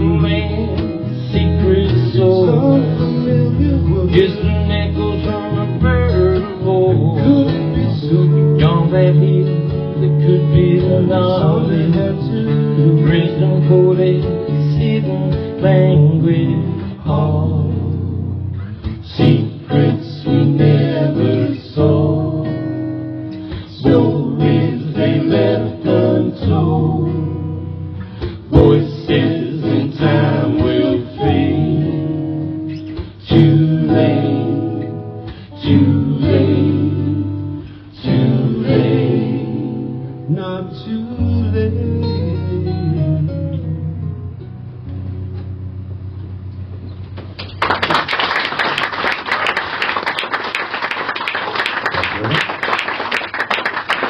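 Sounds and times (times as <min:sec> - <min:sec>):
acoustic guitar chords: 0:00.0 - 0:54.0
audience applause: 0:47.4 - 0:54.0.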